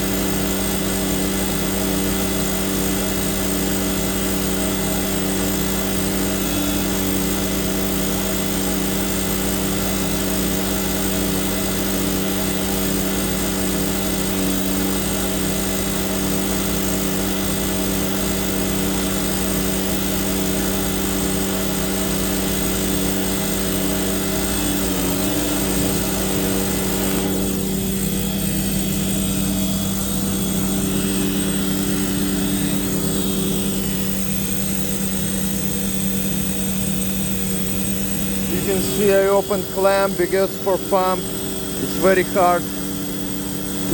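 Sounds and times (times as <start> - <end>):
truck pump and engine drone: 0.0 - 43.9.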